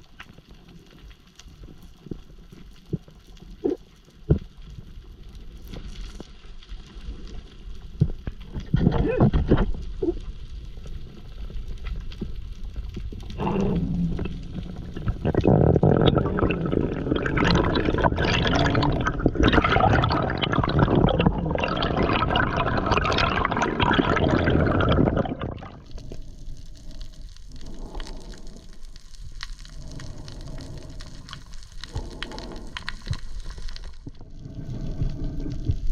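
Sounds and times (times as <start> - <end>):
crackling wash of bubbles: 0.0 - 35.9
water gurgling and bubbling: 13.3 - 28.6.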